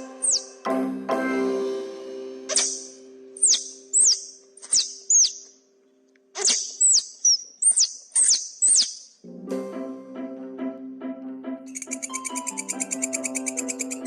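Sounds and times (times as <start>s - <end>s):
animal squeaks sliding down: 0.2s - 0.5s, 2.5s - 5.4s, 6.4s - 9.0s.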